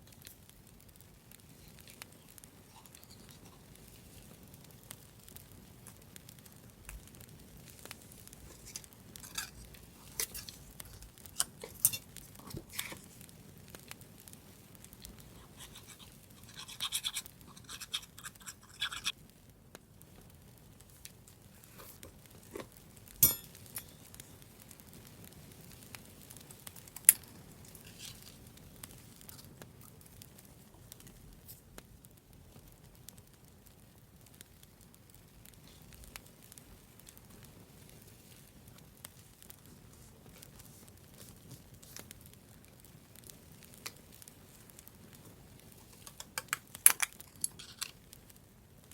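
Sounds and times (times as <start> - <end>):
firewood crackling: 0.0 - 48.9
scratchy rubbing of paper: 15.4 - 19.1.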